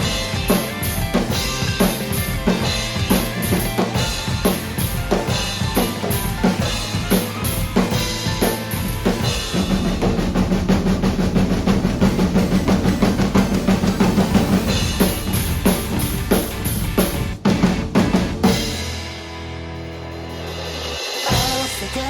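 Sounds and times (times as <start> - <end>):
drum kit playing: 0.0 - 22.0
pop-rock backing track: 0.0 - 22.0
cymbal crashes: 7.6 - 17.3.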